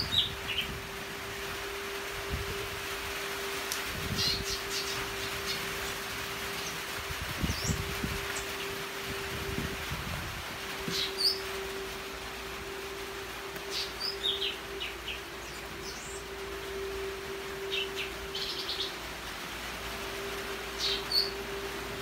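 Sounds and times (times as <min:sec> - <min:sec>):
steady hum: 0:00.0 - 0:22.0
small birds chirping: 0:04.0 - 0:06.0, 0:06.6 - 0:08.8, 0:10.9 - 0:11.5, 0:13.6 - 0:16.3, 0:20.8 - 0:21.4.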